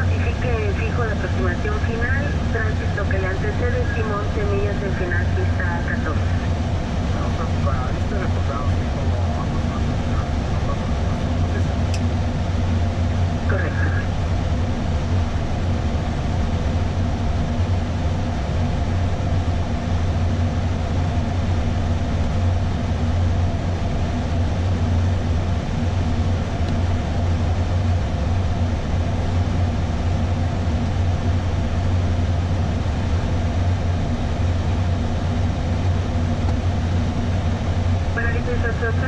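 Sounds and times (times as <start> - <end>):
faint steady tones: 0.0 - 18.0, 22.6 - 39.0
aircraft cabin hum: 0.0 - 39.0.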